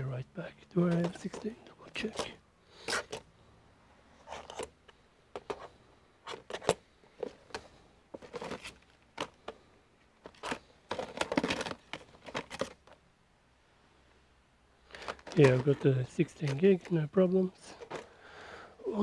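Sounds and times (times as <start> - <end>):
plastic packaging rustling: 0.8 - 3.2, 5.4 - 9.6, 10.2 - 13.0, 14.9 - 18.1.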